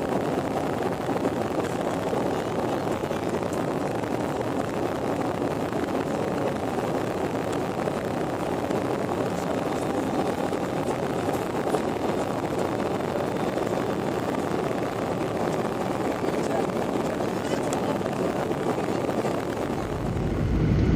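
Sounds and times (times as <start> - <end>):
aircraft in flight rushing: 0.0 - 20.9.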